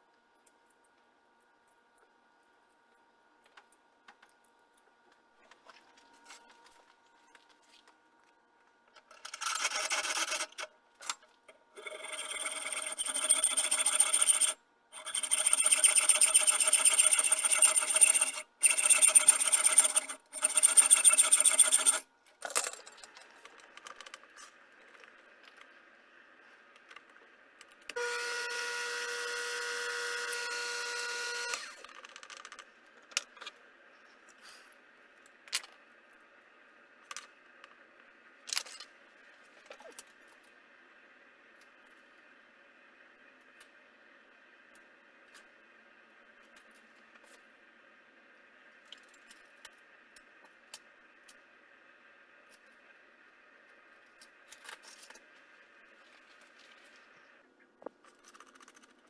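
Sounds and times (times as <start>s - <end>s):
small power tool whining: 11.8s - 22.0s, 28.0s - 31.9s.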